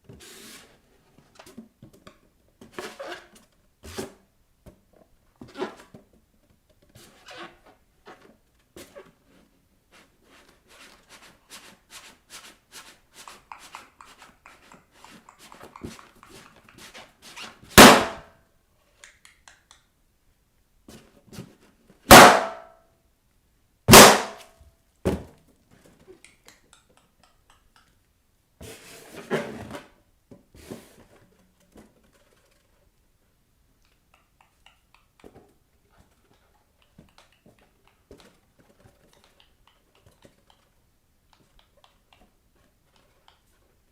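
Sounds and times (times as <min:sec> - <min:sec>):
bare feet tapping on balloons: 0:13.6 - 0:18.2, 0:22.1 - 0:22.6, 0:23.9 - 0:24.4
balloons popping: 0:17.7 - 0:18.3, 0:22.1 - 0:22.7, 0:23.9 - 0:24.4.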